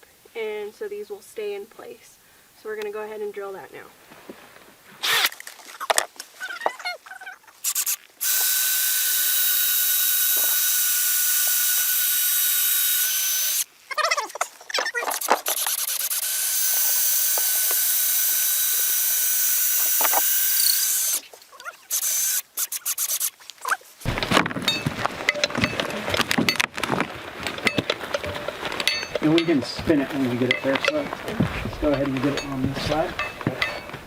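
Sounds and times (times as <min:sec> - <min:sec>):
power drill boring wood: 0:05.0 - 0:05.3, 0:07.6 - 0:13.7, 0:15.0 - 0:23.4
handling clicks and knocks: 0:24.0 - 0:34.0.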